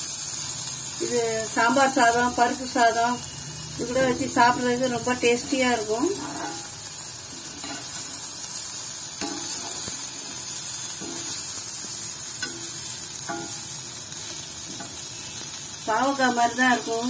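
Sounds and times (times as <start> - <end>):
vegetables sizzling in oil: 0.0 - 17.0
spoon stirring in a pan: 7.3 - 8.2, 9.1 - 15.5.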